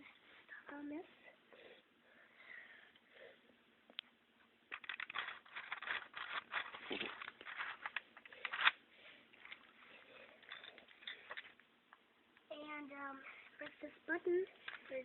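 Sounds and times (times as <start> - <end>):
wooden toy train clattering: 4.7 - 8.8, 10.4 - 11.6.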